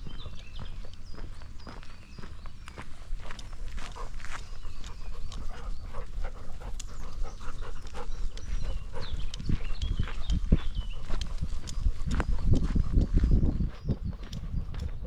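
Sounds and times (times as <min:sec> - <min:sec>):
paws crunching on trail: 0:00.0 - 0:15.0
dog panting: 0:02.9 - 0:13.2.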